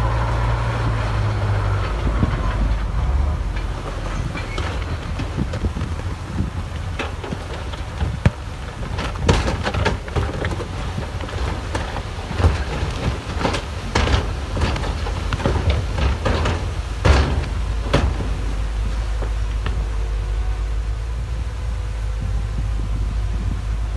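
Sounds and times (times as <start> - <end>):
low diesel rumble: 0.0 - 23.9
metallic clanks and knocks: 0.9 - 20.0.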